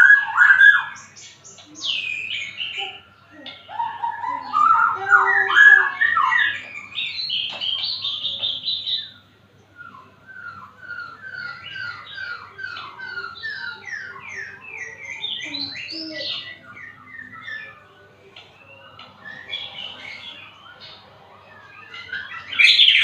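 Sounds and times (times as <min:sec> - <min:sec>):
bird singing whistled phrases: 0:09.8 - 0:23.0.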